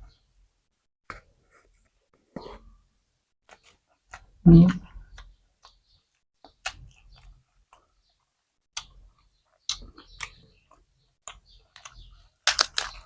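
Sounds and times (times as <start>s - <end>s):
person chewing food: 3.4s - 5.8s, 6.4s - 13.0s.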